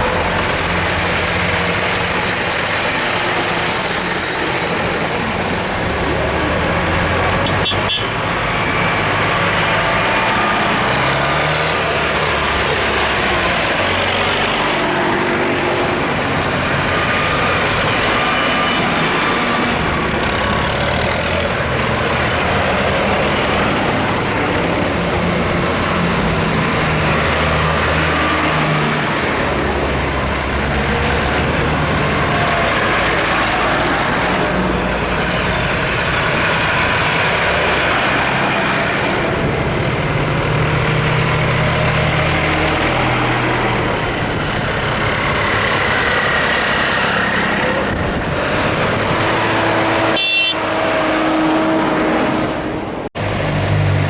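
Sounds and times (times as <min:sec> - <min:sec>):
steady road roar: 0:00.0 - 0:54.0
vehicles driving past: 0:00.0 - 0:54.0.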